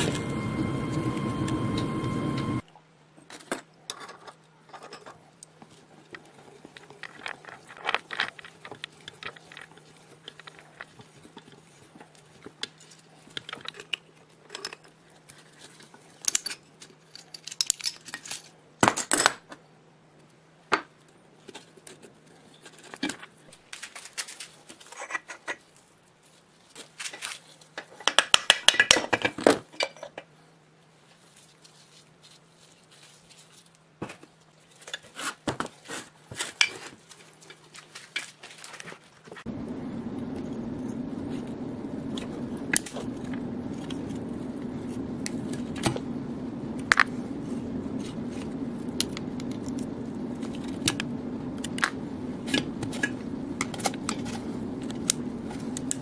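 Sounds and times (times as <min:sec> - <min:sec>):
low steady hum: 0:00.0 - 0:04.0, 0:39.4 - 0:56.0.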